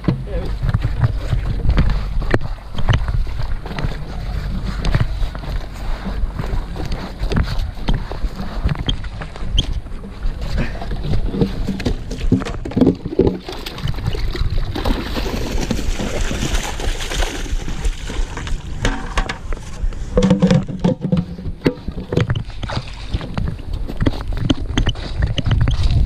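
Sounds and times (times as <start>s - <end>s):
thumps and rustling in dry grass: 0.0s - 26.0s
water splashing into stream: 12.4s - 19.5s
bucket lid knocks: 18.8s - 19.5s.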